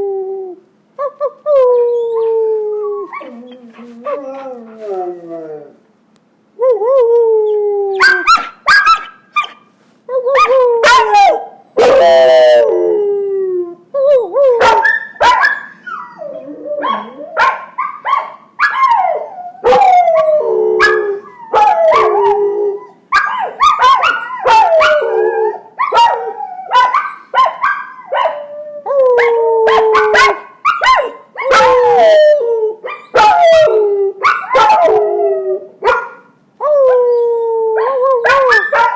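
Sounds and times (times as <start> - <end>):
puppies howling: 1.5 - 5.8, 14.2 - 18.0, 18.6 - 35.6.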